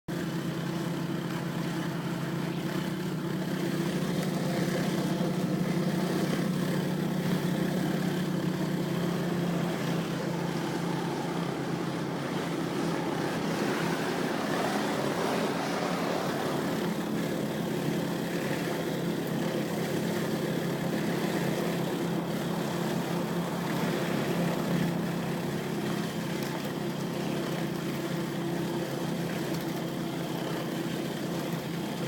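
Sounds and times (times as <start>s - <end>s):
pressure washer engine drone: 0.1s - 32.0s.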